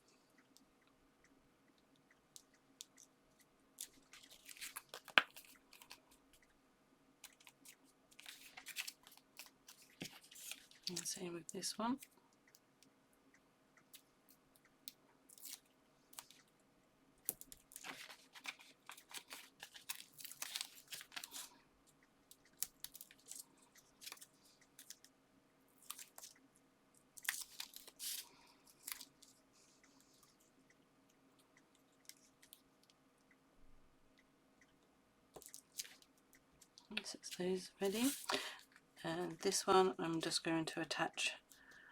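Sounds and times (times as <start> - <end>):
paper crinkling and peeling: 3.8 - 6.0, 7.4 - 11.1, 17.7 - 21.5, 37.8 - 38.4.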